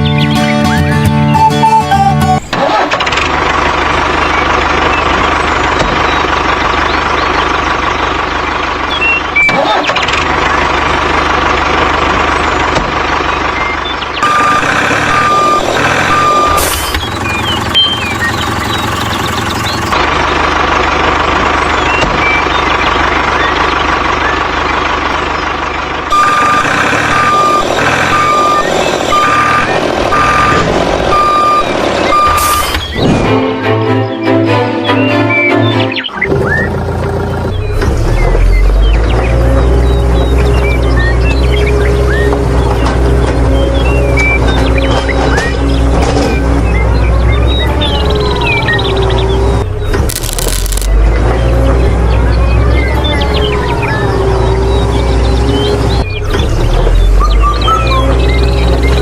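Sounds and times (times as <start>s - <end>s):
heavy vehicle engine running: 0.0s - 59.0s
reversing alarm beeping: 13.6s - 19.9s, 26.1s - 33.0s.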